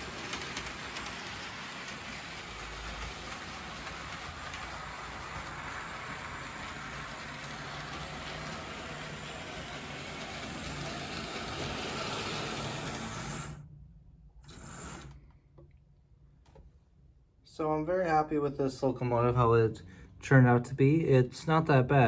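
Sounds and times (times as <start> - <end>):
toy train motor humming: 0.0 - 13.6, 14.5 - 15.2.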